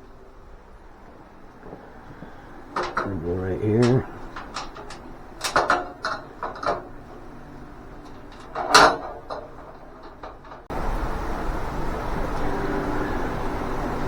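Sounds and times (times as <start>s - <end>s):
metal parts clinking and knocking: 1.6s - 10.7s.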